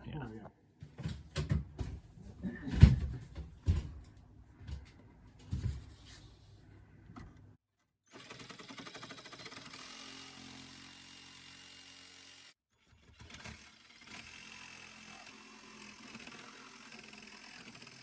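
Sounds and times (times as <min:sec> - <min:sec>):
buzzing motor: 0:13.4 - 0:18.0.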